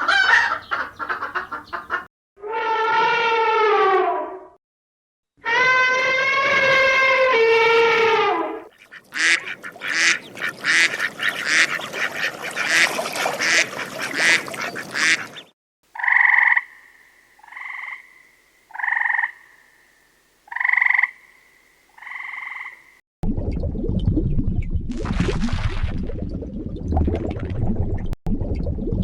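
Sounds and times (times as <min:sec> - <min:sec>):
duck quacking: 0:00.0 - 0:02.1, 0:08.7 - 0:16.6
frog croaking: 0:15.9 - 0:23.0.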